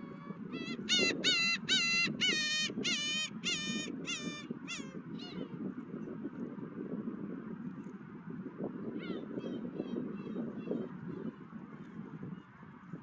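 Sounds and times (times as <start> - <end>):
wind: 0.0 - 13.0
gull squawking: 0.6 - 5.4.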